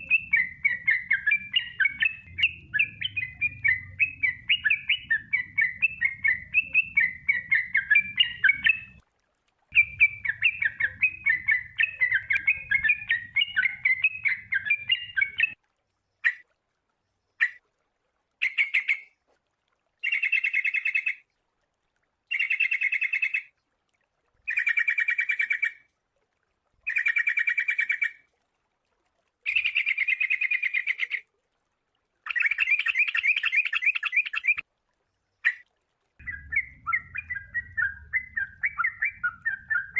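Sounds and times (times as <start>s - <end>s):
bulbul song: 0.0s - 9.0s, 9.7s - 15.6s, 16.2s - 16.5s, 17.4s - 17.6s, 18.4s - 19.2s, 20.0s - 21.3s, 22.3s - 23.6s, 24.4s - 25.9s, 26.8s - 28.3s, 29.4s - 31.3s, 32.2s - 34.7s, 35.3s - 39.9s.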